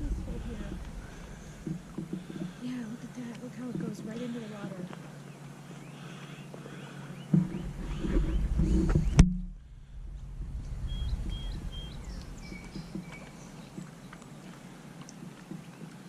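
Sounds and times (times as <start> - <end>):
low rumble: 0.0 - 5.2, 7.3 - 14.3
songbirds whistling and chirping: 5.2 - 9.2, 10.7 - 14.8.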